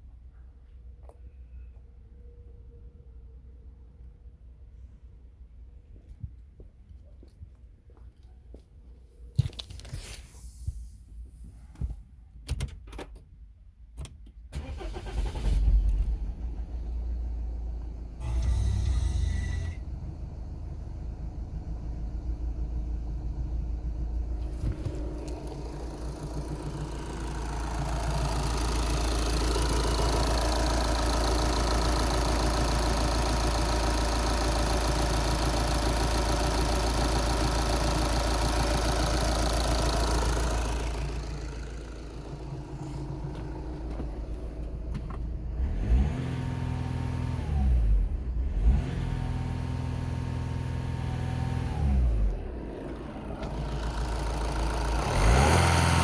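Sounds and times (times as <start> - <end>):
diesel engine idling and revving: 14.6 - 56.0.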